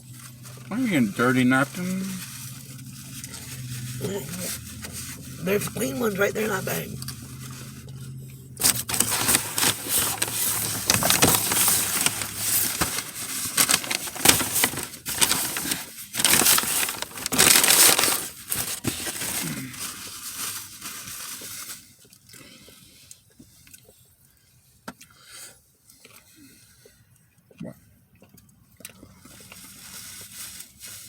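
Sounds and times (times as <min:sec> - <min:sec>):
paper bag rustling and crinkling: 0:00.0 - 0:22.0, 0:29.6 - 0:31.0.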